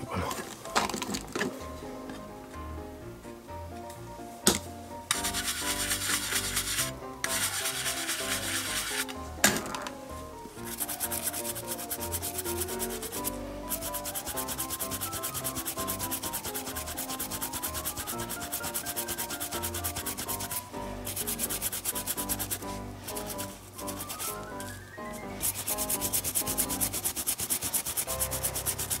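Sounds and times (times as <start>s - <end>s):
dauber rubbing leather: 5.1s - 9.1s, 10.6s - 29.0s.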